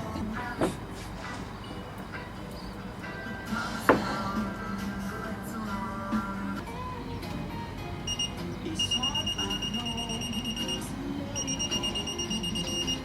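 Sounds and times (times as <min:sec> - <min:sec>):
background music: 0:00.0 - 0:13.0
rapidly pulsing electronic beep: 0:08.1 - 0:13.0.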